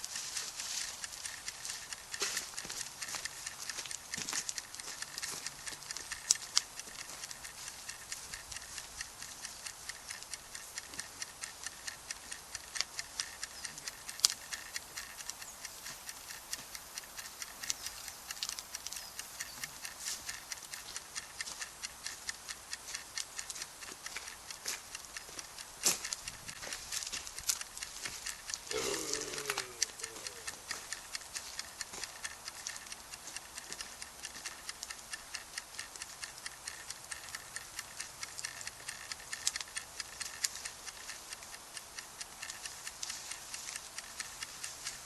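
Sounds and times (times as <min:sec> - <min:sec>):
campfire crackling: 0:00.0 - 0:45.0.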